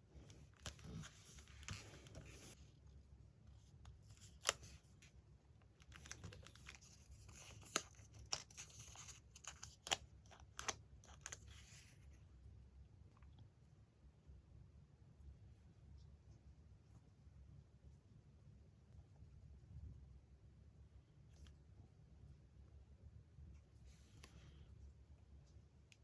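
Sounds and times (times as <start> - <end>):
paper rustling: 0.2 - 2.6, 5.8 - 12.0.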